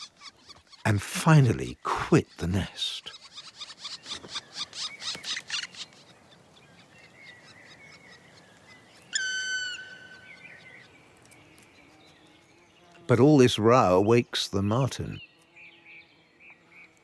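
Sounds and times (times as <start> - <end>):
woodpeckers calling: 2.5 - 6.1.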